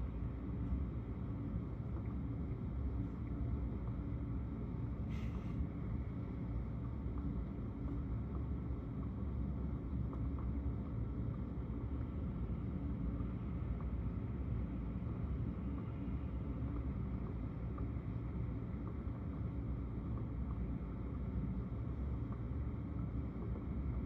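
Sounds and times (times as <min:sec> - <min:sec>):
brief hiss: 0:05.1 - 0:05.6.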